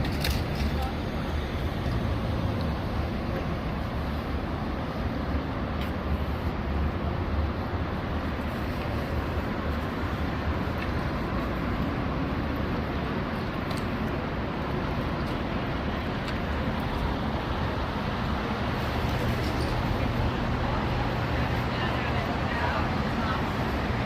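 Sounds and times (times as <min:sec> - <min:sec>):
low rumble of vehicle noise: 0:00.0 - 0:24.0.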